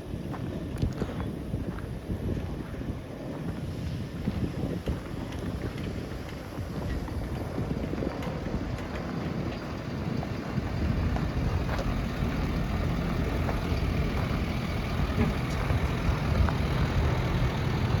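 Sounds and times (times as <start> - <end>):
truck engine idling: 5.1 - 18.0.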